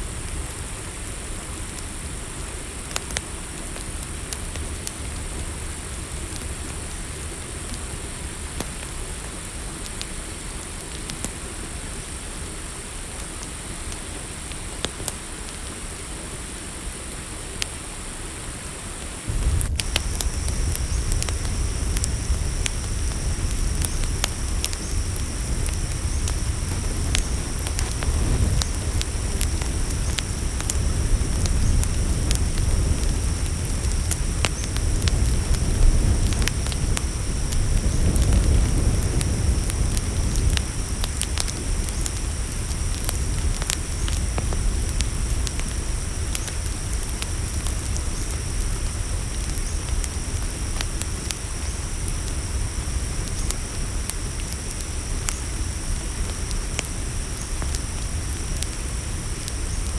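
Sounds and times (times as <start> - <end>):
campfire crackling: 0.0 - 59.9
high chorus of night insects: 0.0 - 59.9
low-pitched insect drone: 0.0 - 59.9
steady hiss: 0.0 - 59.9
low rumble: 19.3 - 40.9.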